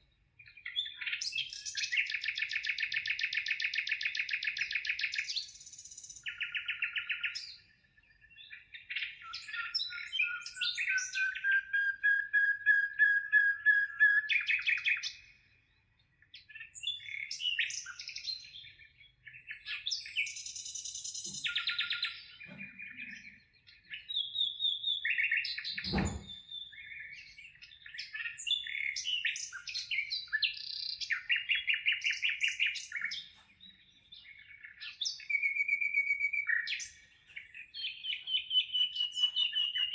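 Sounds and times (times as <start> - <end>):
small birds singing and trilling: 0.0 - 39.9
brief knock: 25.8 - 26.4.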